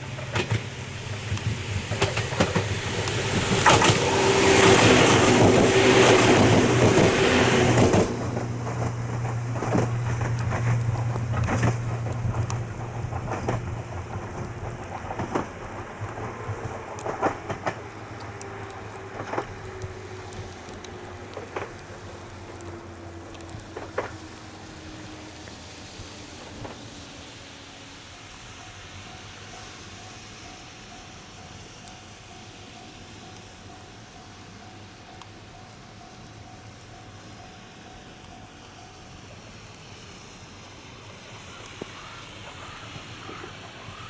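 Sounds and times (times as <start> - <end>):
wheel clacks over rail joints: 0.0 - 27.3
electric train passing: 0.0 - 44.0
steady rain: 0.0 - 44.0.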